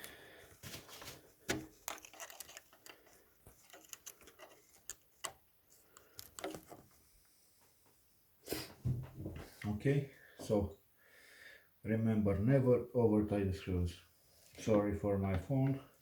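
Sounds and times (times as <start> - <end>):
small tools clicking and tapping: 1.8 - 6.8.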